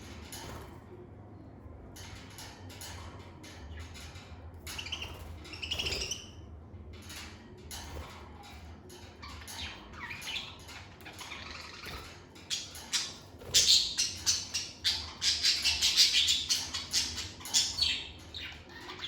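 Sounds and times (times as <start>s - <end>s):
lovebirds chirping and squawking: 3.6s - 6.5s, 7.9s - 19.0s.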